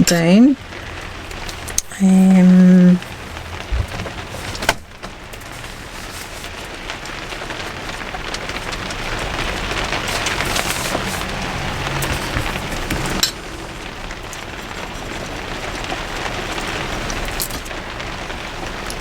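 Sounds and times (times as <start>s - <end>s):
heavy rain falling: 0.0s - 19.0s
soft knocks: 3.1s - 5.2s.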